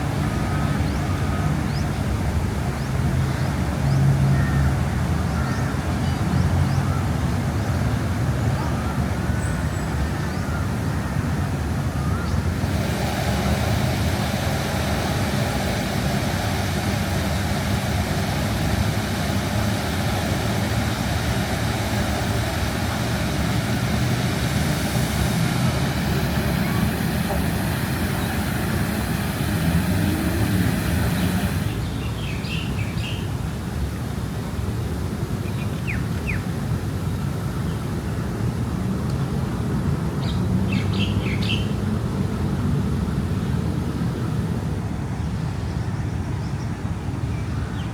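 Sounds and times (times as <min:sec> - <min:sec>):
road traffic rumble: 0:00.0 - 0:47.9
loud even hiss: 0:10.7 - 0:33.3.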